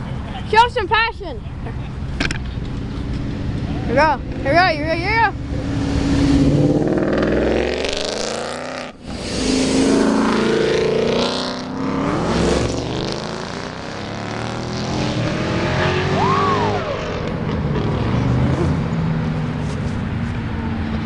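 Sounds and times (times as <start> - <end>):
cars accelerating past: 2.6 - 21.0
tire squeal: 16.1 - 17.2.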